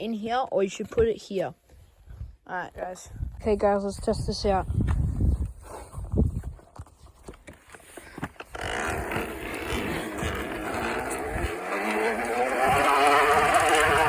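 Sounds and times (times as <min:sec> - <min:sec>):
plastic bottle rattling on bicycle wheel: 0:08.3 - 0:14.0.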